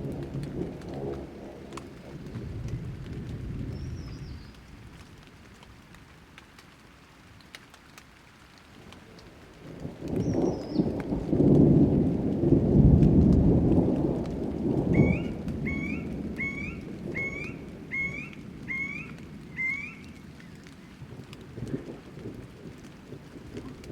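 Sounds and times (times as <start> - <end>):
low rumble of thunder: 0.0 - 6.2, 8.8 - 23.9
light rain: 0.0 - 23.9
bird chirping: 15.0 - 20.2.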